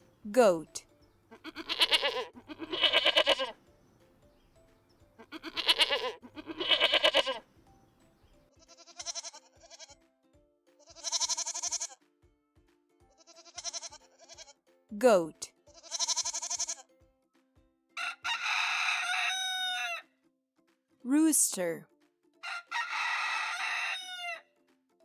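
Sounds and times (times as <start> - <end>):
soft background music: 0.0 - 25.0
goats bleating: 1.3 - 3.6, 5.2 - 7.4, 8.6 - 9.9, 10.9 - 12.0, 13.4 - 14.4, 15.8 - 16.8.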